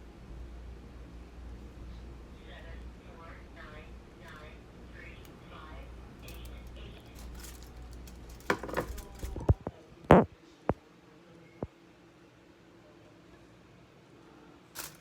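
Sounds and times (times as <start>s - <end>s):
utensils and dishes clattering: 7.2s - 9.4s.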